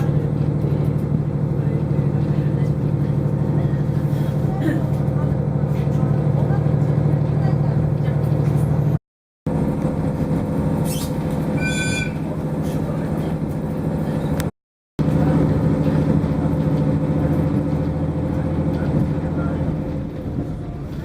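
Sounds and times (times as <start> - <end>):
train engine hum inside car: 0.0 - 21.0
brief high squeal: 10.8 - 12.4.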